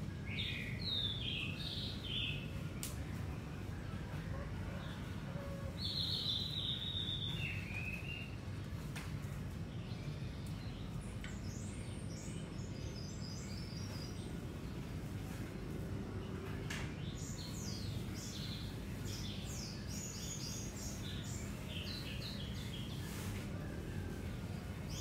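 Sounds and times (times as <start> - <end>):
low background noise: 0.0 - 25.0
songbirds chirping: 0.0 - 25.0.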